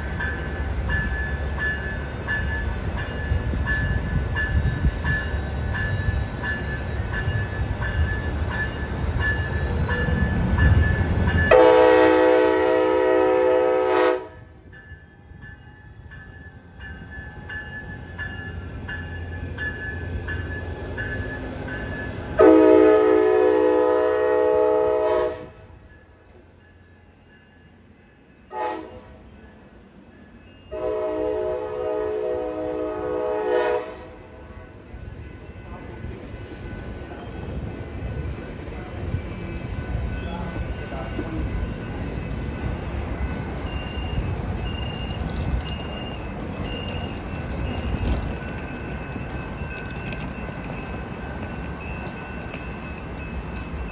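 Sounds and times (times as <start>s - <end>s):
faint train rumble: 0.0s - 53.9s
train horn blasts: 11.5s - 14.6s, 22.4s - 25.8s, 28.5s - 29.2s, 30.7s - 34.7s.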